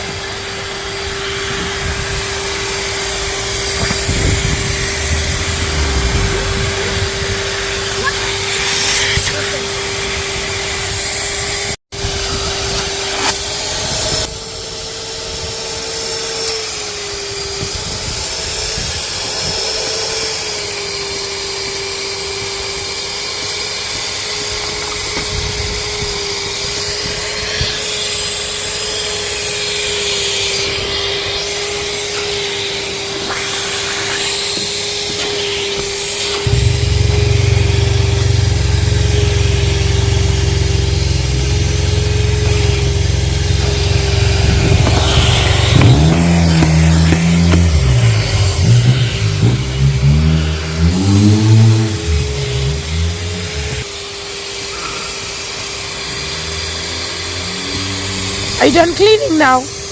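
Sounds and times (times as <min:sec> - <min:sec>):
vacuum cleaner running: 0:00.0 - 0:59.9
deep low hum: 0:03.2 - 0:08.8, 0:36.5 - 0:53.8.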